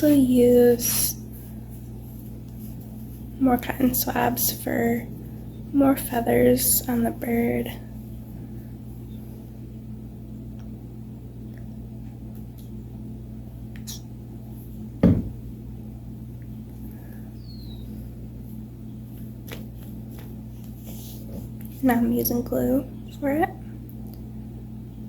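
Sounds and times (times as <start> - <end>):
low electrical hum: 0.0 - 25.0
loud thump: 15.0 - 15.5.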